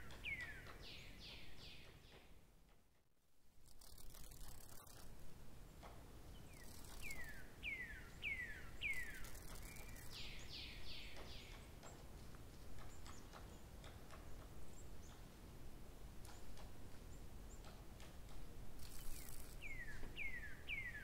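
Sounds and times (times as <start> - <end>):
faint outdoor background noise: 0.0 - 21.0.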